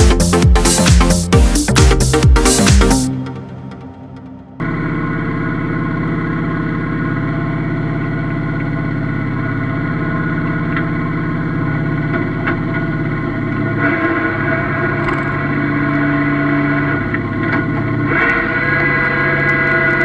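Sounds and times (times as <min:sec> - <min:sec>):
tractor diesel engine running: 0:04.6 - 0:18.1.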